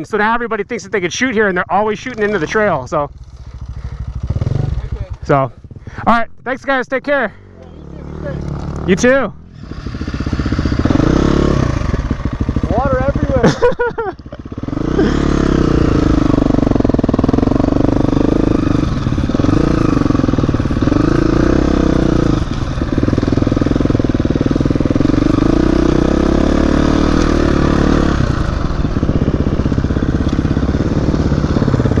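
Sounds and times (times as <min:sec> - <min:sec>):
dirt bike engine running: 0:01.4 - 0:06.1, 0:07.2 - 0:32.0.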